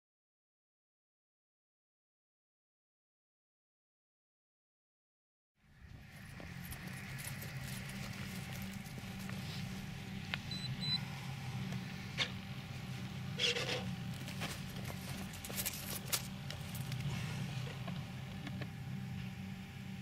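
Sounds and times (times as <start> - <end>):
model plane engine running: 5.6 - 20.0
handling rustle: 12.9 - 17.9.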